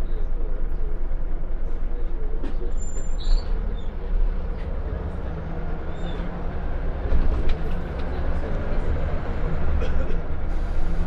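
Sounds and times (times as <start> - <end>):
bus diesel engine: 0.0 - 11.0
road noise: 2.4 - 11.0.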